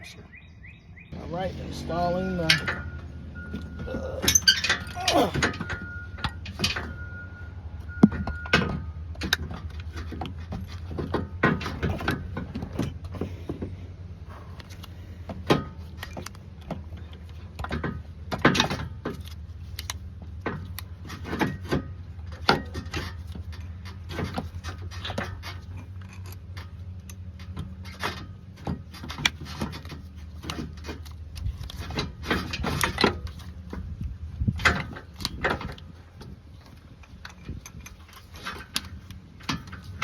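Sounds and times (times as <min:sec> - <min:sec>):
metallic clinks and rattles: 0:02.3 - 0:07.3, 0:14.3 - 0:40.0.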